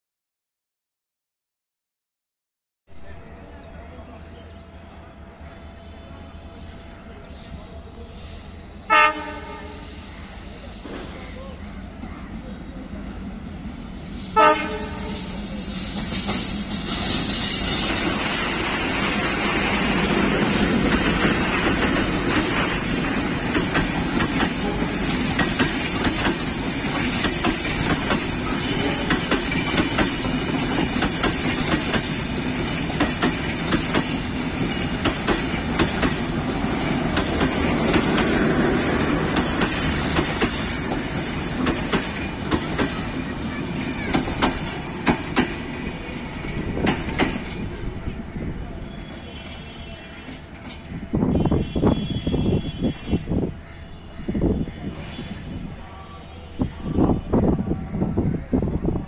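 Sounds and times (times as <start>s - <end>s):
diesel locomotive engine: 2.9s - 59.0s
train wheels clicking over rail joints: 15.6s - 48.0s.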